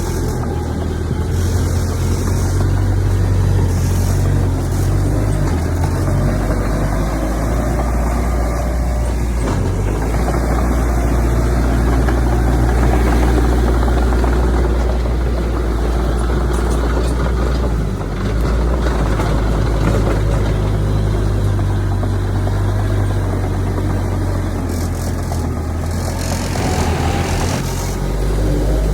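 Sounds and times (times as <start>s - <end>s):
diesel engine droning: 0.0s - 28.9s.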